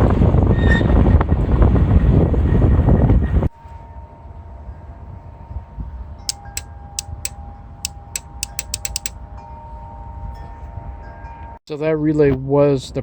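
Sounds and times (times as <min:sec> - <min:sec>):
sharp light clicks: 0:06.3 - 0:09.1.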